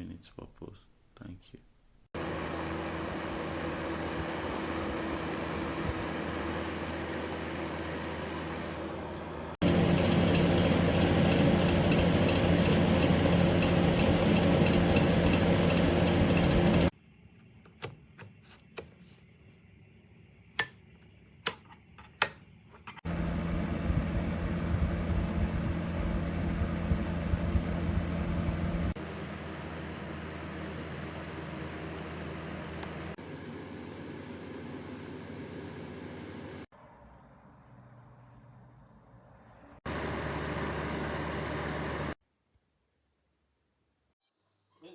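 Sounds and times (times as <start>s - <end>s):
fan heater blowing air: 2.2s - 16.9s, 23.0s - 36.6s.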